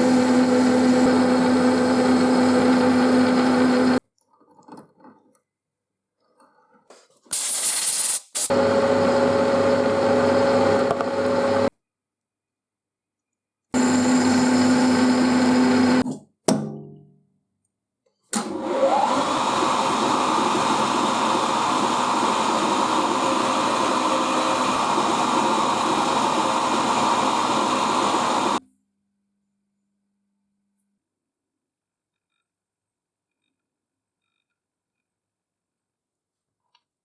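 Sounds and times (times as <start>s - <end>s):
shop machine motor running: 0.0s - 4.0s, 8.5s - 11.7s, 13.8s - 16.0s, 18.5s - 28.6s.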